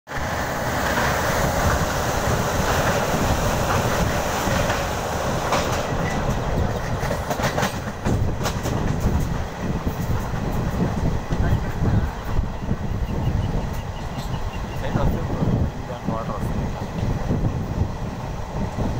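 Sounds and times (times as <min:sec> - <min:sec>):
train wheel and air rush: 0:00.1 - 0:18.9
wheels clicking over rail joints: 0:00.8 - 0:11.8.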